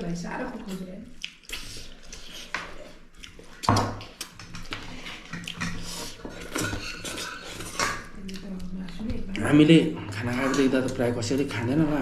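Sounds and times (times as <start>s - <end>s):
wet chewing: 0.5s - 12.0s.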